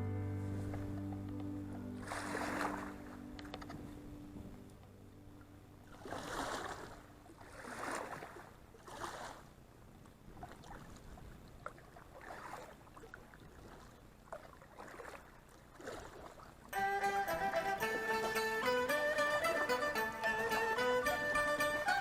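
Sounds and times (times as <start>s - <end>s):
paddle swishing into water: 1.9s - 4.1s, 5.8s - 16.7s.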